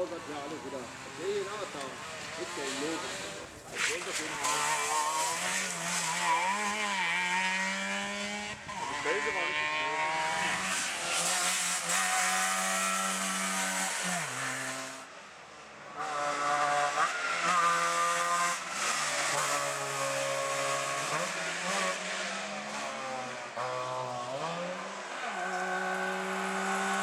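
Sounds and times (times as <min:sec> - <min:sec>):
two-stroke engines revving hard: 0:00.0 - 0:27.0.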